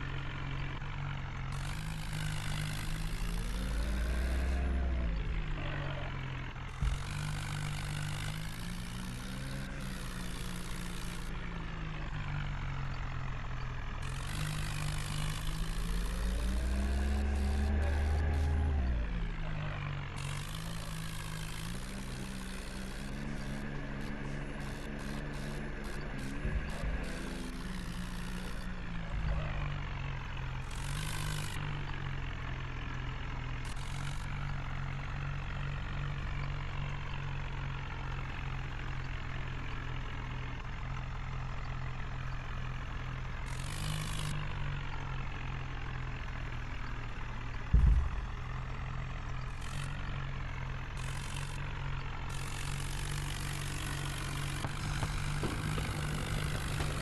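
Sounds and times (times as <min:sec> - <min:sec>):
tractor diesel engine running: 0:00.0 - 0:57.0
loud thump: 0:47.7 - 0:48.4.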